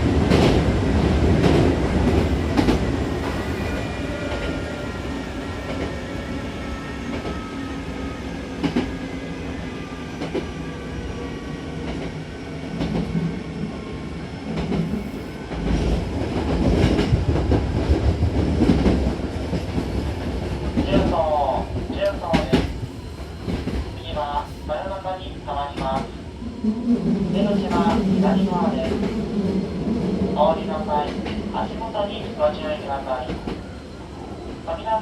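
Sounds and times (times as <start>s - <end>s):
train rumble from inside car: 0.0s - 4.6s, 14.5s - 26.1s
rail clicks: 0.2s - 0.7s, 15.5s - 22.8s, 23.4s - 26.2s, 27.3s - 33.7s.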